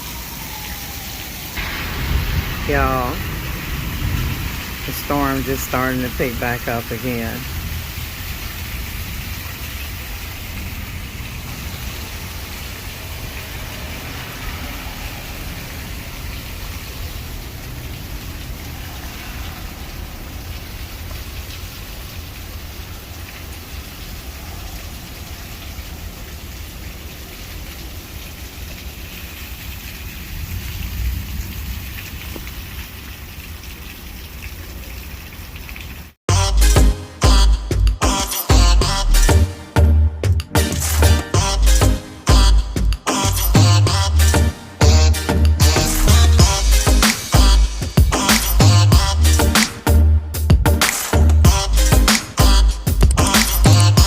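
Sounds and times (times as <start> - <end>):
steady rain falling: 0.0 - 36.2, 40.5 - 54.0
low thunder rumble: 0.5 - 6.2, 7.4 - 22.0, 30.2 - 32.4.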